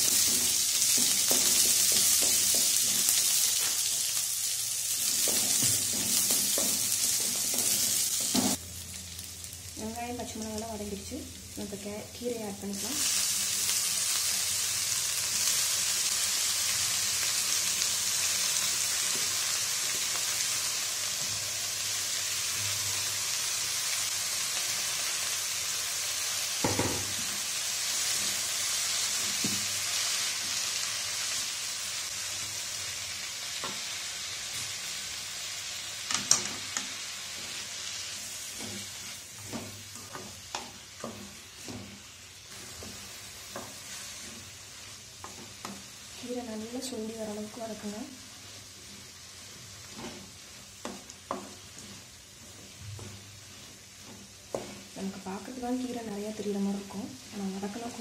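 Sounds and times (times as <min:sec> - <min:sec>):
leaves sizzling in hot oil: 0:00.0 - 0:58.0
wooden spatula scraping a pan: 0:37.3 - 0:45.9, 0:47.5 - 0:57.0.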